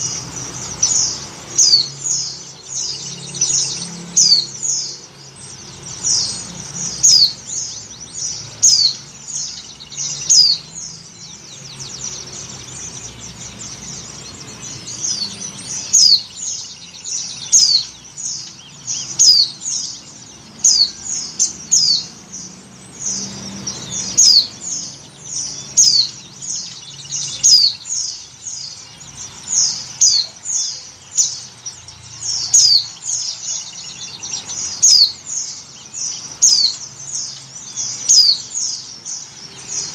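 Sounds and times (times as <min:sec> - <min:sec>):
white-eye chirping: 0:00.0 - 0:39.9.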